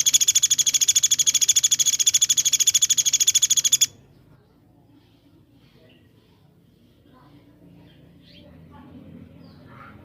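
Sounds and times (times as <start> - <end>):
songbird fast high trill: 0.0 - 4.0.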